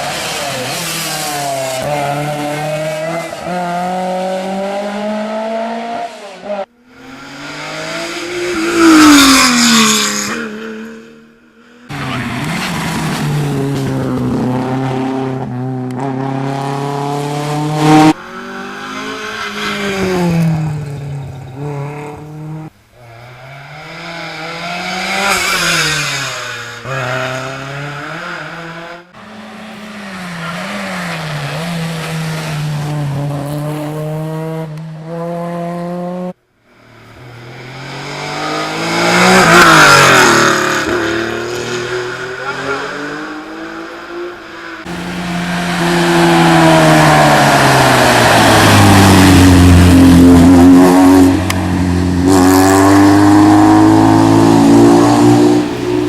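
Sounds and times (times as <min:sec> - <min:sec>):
rally car engines revving: 0:00.0 - 0:56.0
car passing close: 0:36.8 - 0:56.0.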